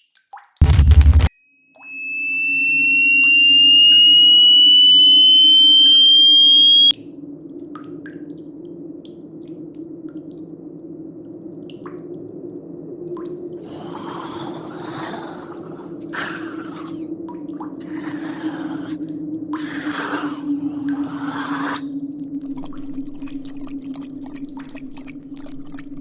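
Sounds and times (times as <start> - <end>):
water dripping: 0.0 - 0.6, 1.8 - 26.0
water gurgling and splashing: 7.0 - 26.0.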